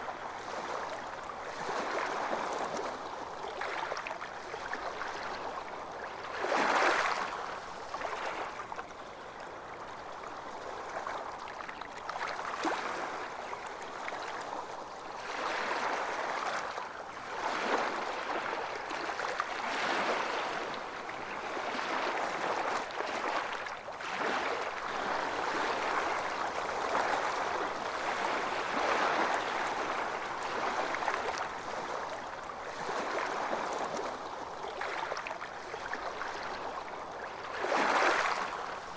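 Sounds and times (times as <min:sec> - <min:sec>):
waves washing onto beach: 0:12.0 - 0:38.9.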